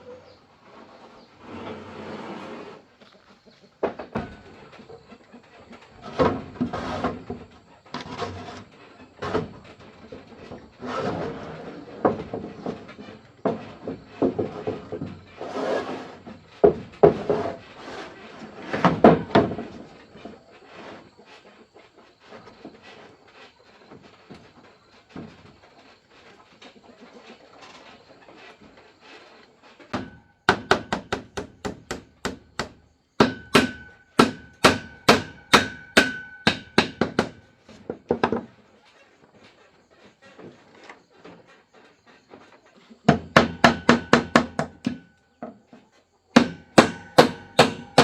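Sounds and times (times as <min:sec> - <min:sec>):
rubbing and sliding noises: 0:00.0 - 0:31.7
wood knocking: 0:29.9 - 0:38.5, 0:46.4 - 0:48.0.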